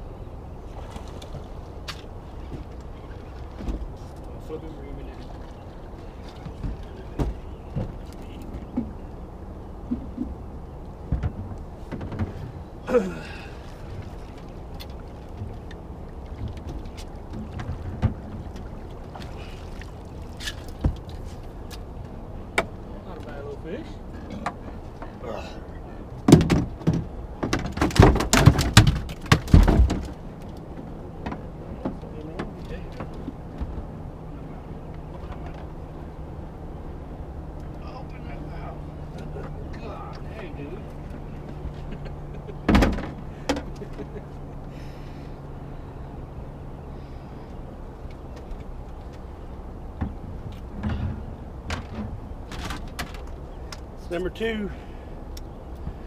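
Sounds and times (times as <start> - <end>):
sharp knocks and thumps: 6.4 - 9.0, 11.1 - 12.4, 26.3 - 33.8, 50.0 - 53.3.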